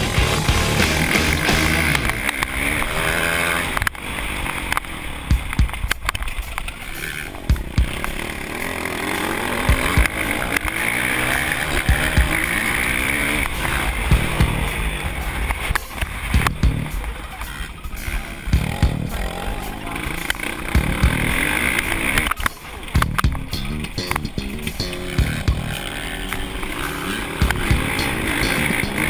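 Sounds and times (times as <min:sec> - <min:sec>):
motocross bike engine revving: 0:00.0 - 0:29.0
short low thumps: 0:05.3 - 0:05.9, 0:14.1 - 0:14.7, 0:16.4 - 0:17.0, 0:18.5 - 0:19.2, 0:20.8 - 0:21.4, 0:23.0 - 0:25.8, 0:27.4 - 0:28.0.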